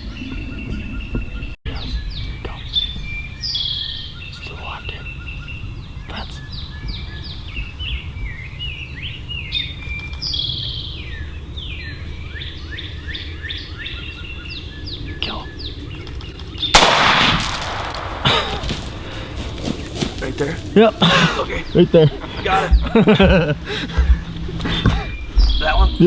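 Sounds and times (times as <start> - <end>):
songbirds chirping: 0.0 - 26.0
low outdoor rumble: 1.7 - 26.0
shotgun blast: 16.8 - 19.8.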